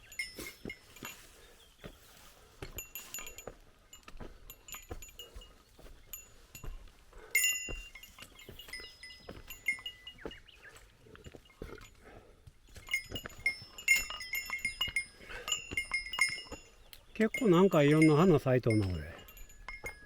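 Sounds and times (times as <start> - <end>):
small metal bell jingling: 0.0 - 20.0
soft footfalls: 0.6 - 10.5.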